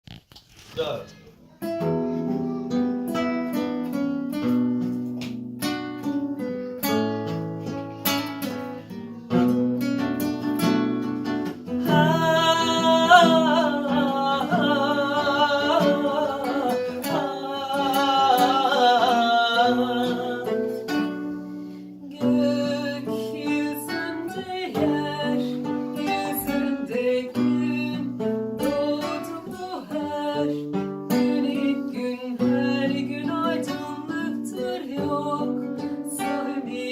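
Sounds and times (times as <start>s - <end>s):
acoustic guitars playing: 0.1s - 36.9s
person singing with vibrato: 8.8s - 10.5s, 11.6s - 36.9s.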